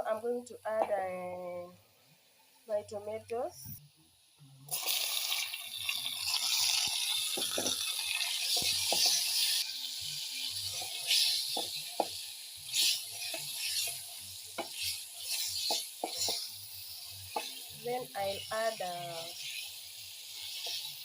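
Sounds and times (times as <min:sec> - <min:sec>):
food sizzling in a pan: 0:00.0 - 0:21.0
spoon stirring and knocking pan: 0:06.8 - 0:09.6, 0:10.7 - 0:16.5, 0:17.3 - 0:17.7.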